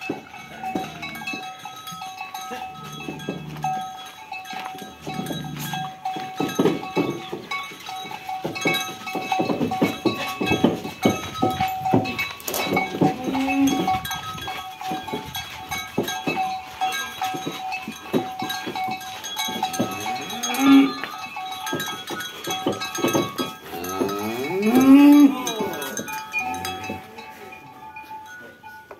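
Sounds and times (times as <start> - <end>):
cattle bells clanking: 0.0 - 28.9
cattle mooing: 0.5 - 1.3, 5.0 - 5.8, 13.0 - 14.0, 19.8 - 21.1, 23.7 - 27.1.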